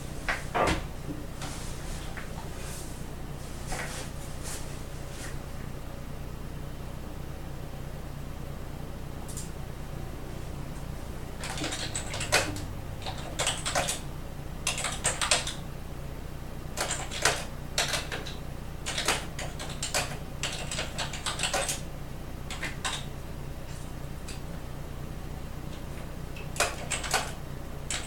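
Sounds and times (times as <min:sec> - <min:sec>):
low steady hum: 0:00.0 - 0:28.0
typing on computer keyboard: 0:11.4 - 0:14.0, 0:14.6 - 0:15.6, 0:16.8 - 0:21.8, 0:22.5 - 0:23.1, 0:26.4 - 0:28.0.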